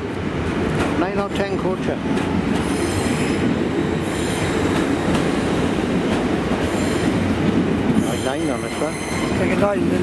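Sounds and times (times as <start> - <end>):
steel wheels rumbling on rail: 0.0 - 10.0
faint high wheel squeal: 8.0 - 9.5.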